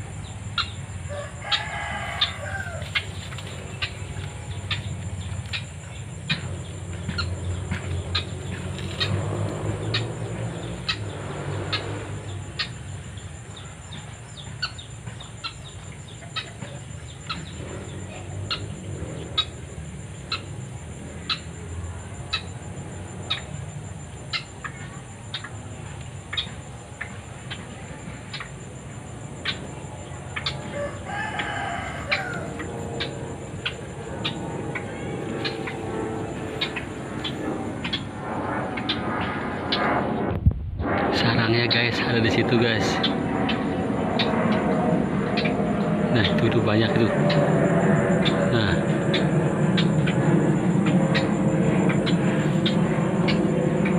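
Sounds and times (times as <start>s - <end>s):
high-pitched insect drone: 0.0s - 53.9s
fowl clucking: 0.6s - 4.9s, 16.2s - 17.5s, 30.4s - 35.8s.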